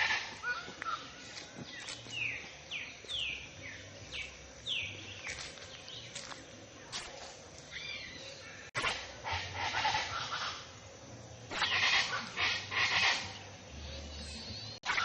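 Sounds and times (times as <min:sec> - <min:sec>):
songbird singing: 0:00.0 - 0:15.0
steady outdoor hiss: 0:00.0 - 0:15.0.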